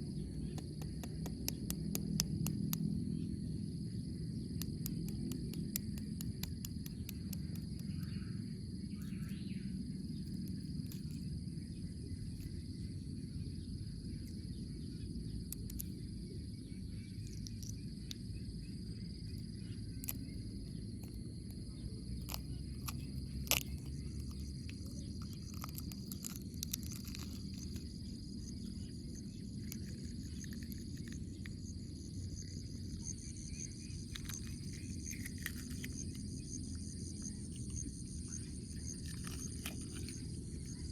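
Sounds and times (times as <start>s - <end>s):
insect chirring: 0.0s - 40.9s
low background rumble: 0.0s - 40.9s.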